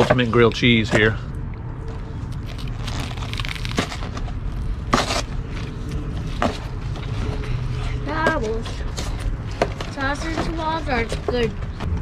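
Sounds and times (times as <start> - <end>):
low outdoor rumble: 0.0 - 12.0
man chewing sandwich: 1.4 - 7.8.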